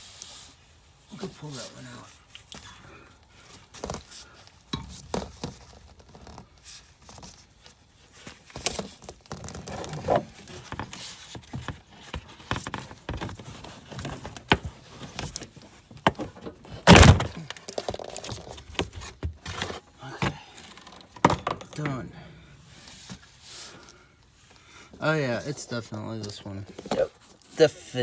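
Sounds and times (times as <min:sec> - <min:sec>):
tools knocking and rattling: 0:09.5 - 0:22.0
heavy thunk: 0:16.9 - 0:17.4.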